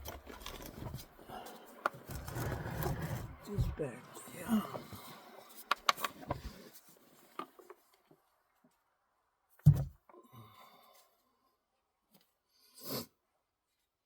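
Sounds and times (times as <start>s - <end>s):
loud thump: 9.6s - 9.9s.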